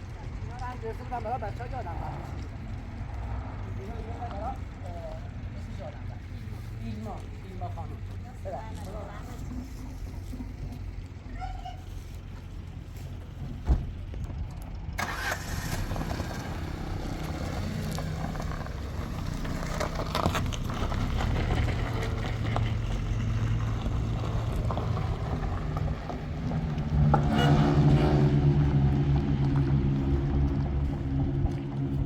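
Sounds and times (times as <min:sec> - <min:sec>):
vehicle engine running: 0:00.0 - 0:32.0
thump: 0:13.6 - 0:14.0.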